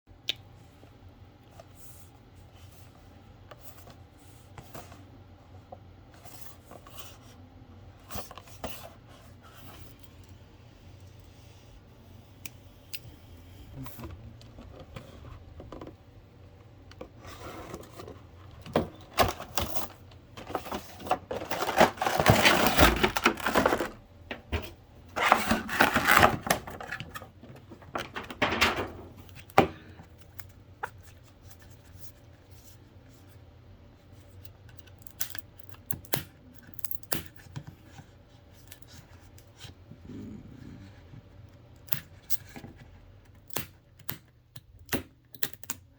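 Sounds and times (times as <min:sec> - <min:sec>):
packaging rustling: 0:17.2 - 0:29.4.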